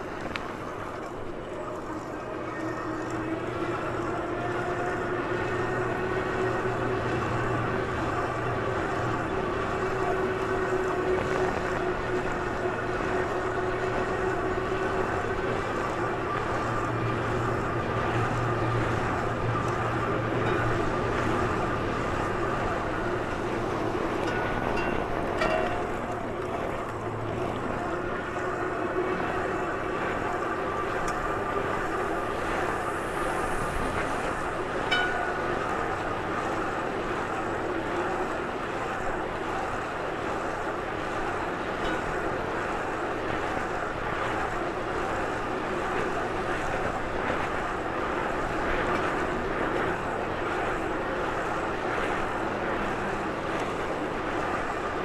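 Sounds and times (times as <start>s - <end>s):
bike rolling noise: 0.0s - 55.0s
faint hum: 0.0s - 55.0s.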